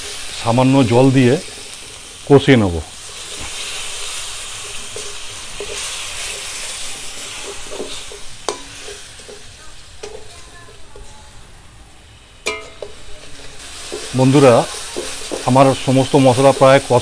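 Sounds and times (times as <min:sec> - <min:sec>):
spices sizzling in a metal pan: 0:00.0 - 0:17.0
spatula knocking and scraping pan: 0:03.0 - 0:11.1, 0:12.5 - 0:17.0.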